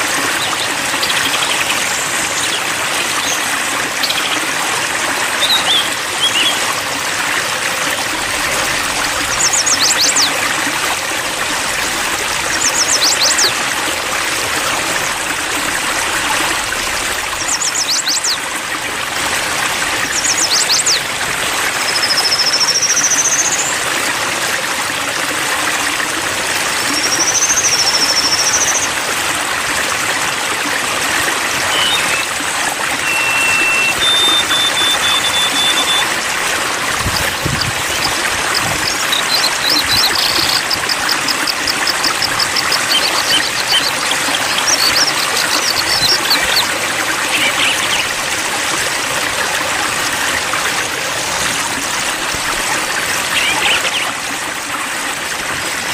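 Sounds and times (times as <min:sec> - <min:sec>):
stream water babbling: 0:00.0 - 0:55.9
bird singing high rapid notes: 0:31.6 - 0:32.4, 0:33.0 - 0:36.2, 0:37.0 - 0:48.1, 0:53.3 - 0:54.1.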